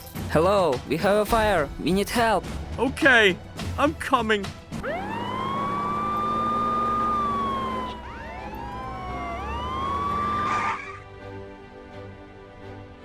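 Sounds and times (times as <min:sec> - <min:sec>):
background music: 0:00.0 - 0:13.0
cartoon fire truck siren wailing: 0:04.8 - 0:11.0.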